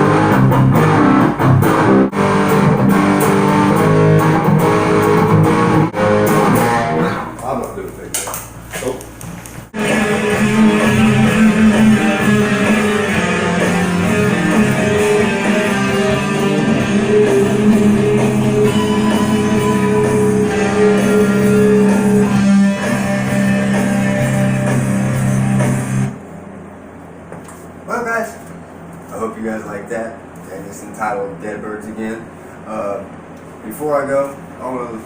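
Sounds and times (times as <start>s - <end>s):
guitar-led rock song: 0.0s - 7.3s, 9.7s - 26.1s.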